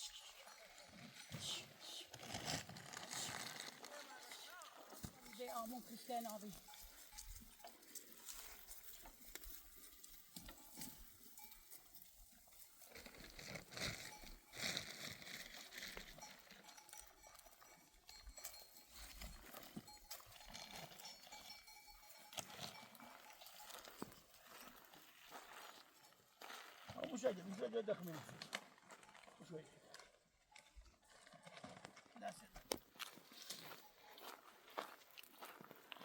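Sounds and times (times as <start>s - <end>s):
livestock bells ringing: 0.0s - 2.1s, 3.8s - 12.9s, 13.7s - 27.5s, 33.3s - 35.0s.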